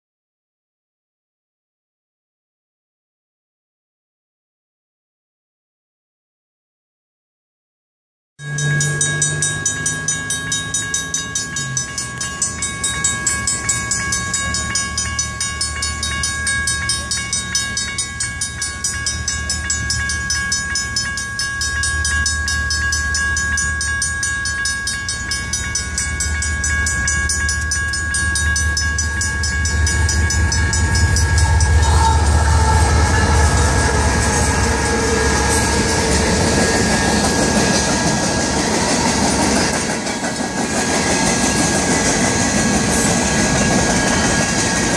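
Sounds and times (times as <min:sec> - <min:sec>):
mechanical bell striking rapidly: 0:08.4 - 0:32.2
electronic crossing bell ringing: 0:08.4 - 0:38.4
passing train rumble: 0:08.4 - 0:44.9
train horn: 0:29.8 - 0:38.2.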